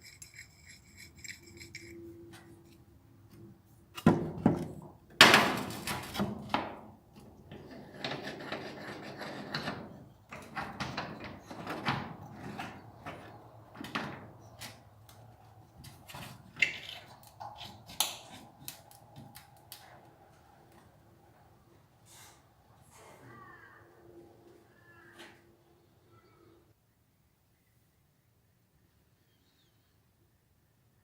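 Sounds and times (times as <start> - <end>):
sharp knocks and clatter: 4.0 - 6.9
scraping or rubbing: 7.6 - 10.0.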